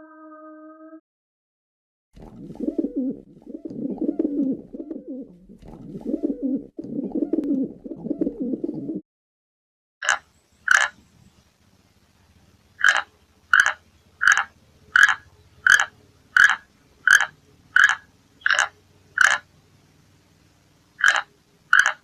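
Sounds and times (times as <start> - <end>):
pigeon cooing: 2.3 - 9.0, 12.9 - 19.5.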